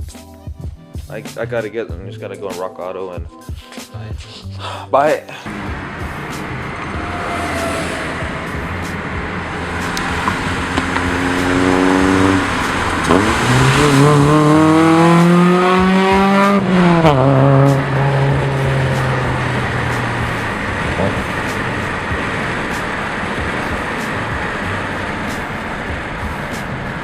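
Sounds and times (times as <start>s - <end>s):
car engine shifting gears: 5.5s - 27.0s.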